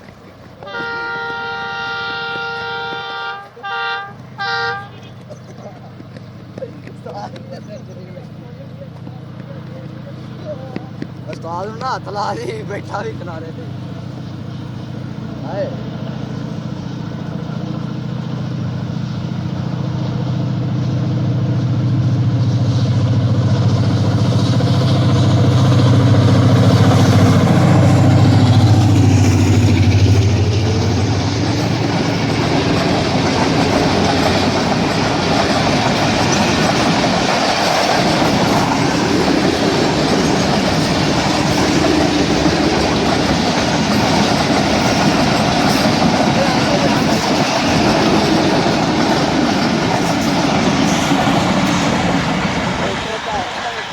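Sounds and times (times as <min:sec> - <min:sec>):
diesel locomotive engine chugging: 0:00.0 - 0:53.9
train coaches rolling rumble: 0:00.0 - 0:53.9
wheel clatter on rails: 0:30.2 - 0:53.9.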